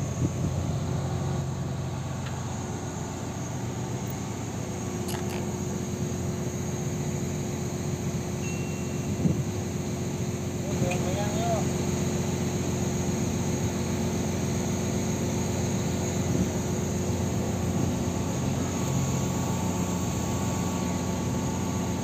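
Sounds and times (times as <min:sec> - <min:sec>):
heavy machine engine idling: 0:00.0 - 0:22.0
faint steady tone: 0:08.3 - 0:09.3.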